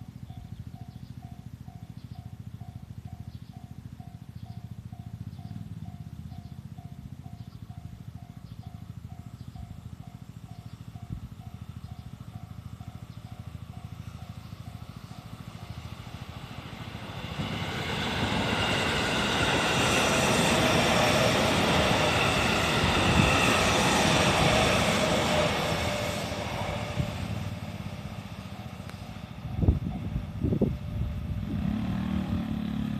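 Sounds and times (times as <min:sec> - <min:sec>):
level-crossing warning bell: 0:00.0 - 0:16.3
train running noise: 0:00.0 - 0:32.9.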